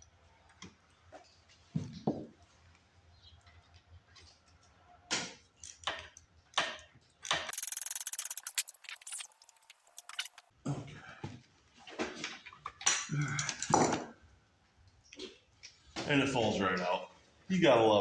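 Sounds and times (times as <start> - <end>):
fast even clicking: 7.5 - 10.4.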